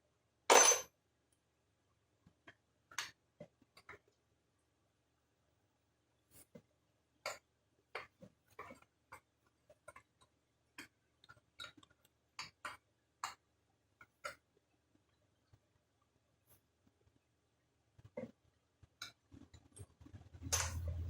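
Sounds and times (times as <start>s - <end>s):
hand tools and metal parts clinking: 0.5s - 0.9s, 20.5s - 21.0s.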